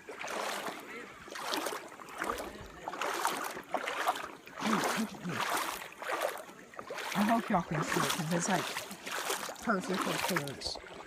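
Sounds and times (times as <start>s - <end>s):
water splashing as person wades: 0.0s - 11.0s.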